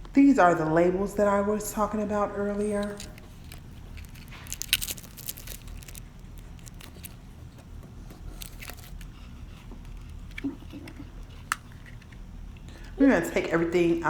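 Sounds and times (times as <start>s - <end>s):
sharp crackles: 2.8s - 7.4s
packaging crinkling and clicking: 2.8s - 13.0s.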